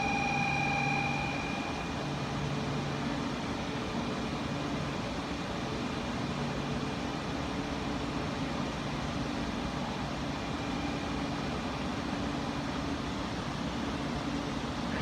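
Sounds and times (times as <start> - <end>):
train hum and rushing: 0.0 - 15.0.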